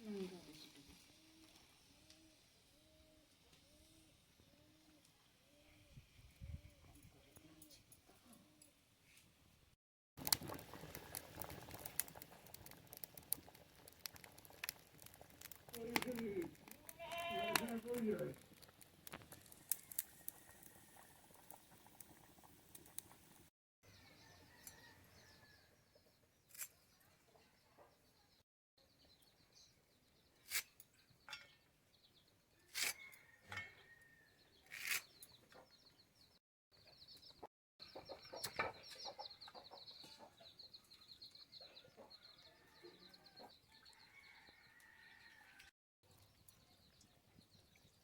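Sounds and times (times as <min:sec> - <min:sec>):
faint bird chirping: 0:23.9 - 0:48.0.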